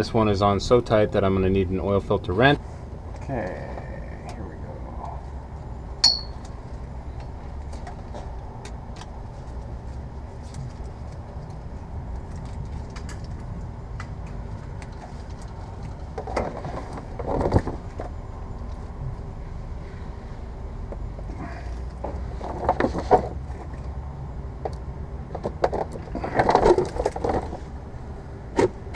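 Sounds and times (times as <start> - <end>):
metal tool clink: 6.0 - 6.4.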